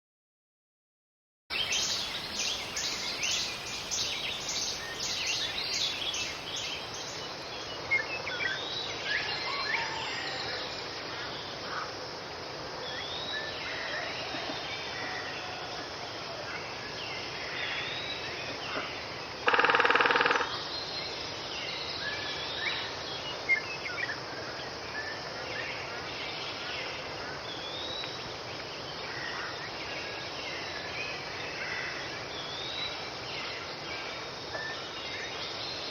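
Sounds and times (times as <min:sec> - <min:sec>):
small birds chirping: 0:01.5 - 0:07.6
steady background hiss: 0:01.5 - 0:35.9.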